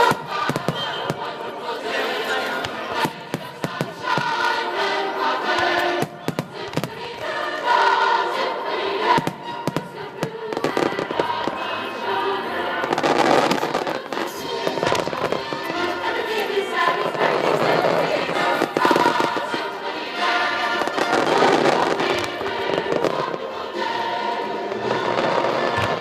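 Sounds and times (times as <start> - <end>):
fireworks bangs and crackles: 0.0 - 1.4, 2.6 - 4.6, 5.5 - 7.9, 9.2 - 11.6, 12.8 - 16.3, 16.9 - 19.8, 20.7 - 23.5, 24.8 - 26.0
choral music: 0.0 - 26.0.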